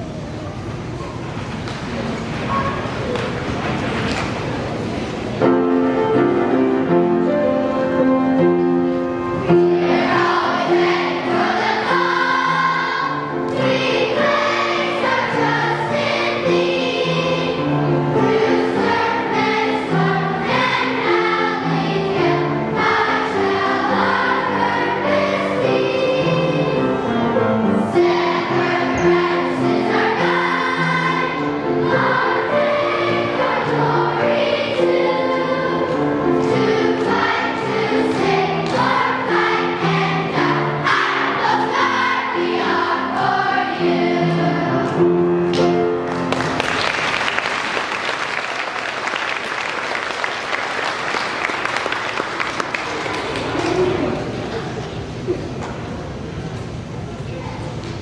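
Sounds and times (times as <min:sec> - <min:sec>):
children's choir singing: 0:05.4 - 0:46.7.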